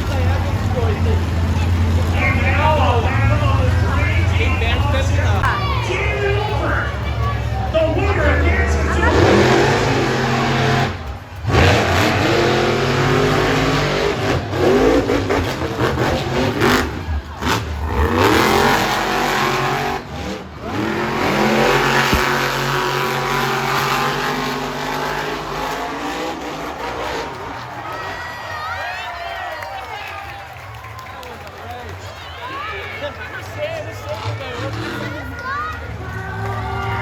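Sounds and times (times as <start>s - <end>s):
truck engine revving hard: 0.0s - 28.7s, 33.1s - 37.0s.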